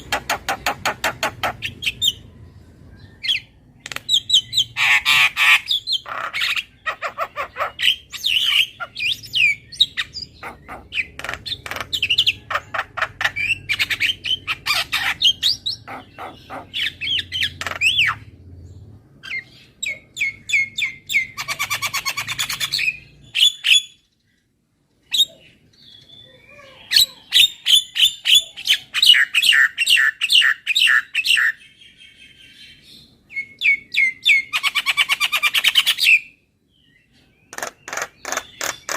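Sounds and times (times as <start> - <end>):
myna chattering calls: 0.0 - 2.2, 3.8 - 9.2, 9.8 - 18.2, 37.5 - 38.9.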